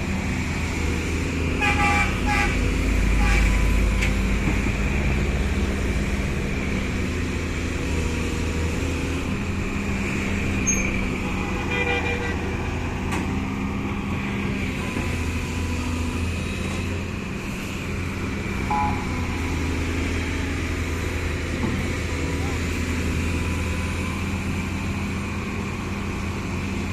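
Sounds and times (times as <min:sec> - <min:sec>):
excavator diesel engine drone: 0:00.0 - 0:26.9
brief high-pitched tone: 0:18.7 - 0:19.2.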